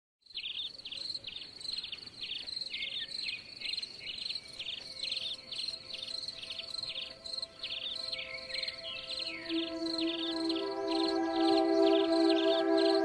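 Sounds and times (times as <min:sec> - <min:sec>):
crickets chirping: 0:00.3 - 0:13.0
faint steady tones: 0:04.6 - 0:13.0.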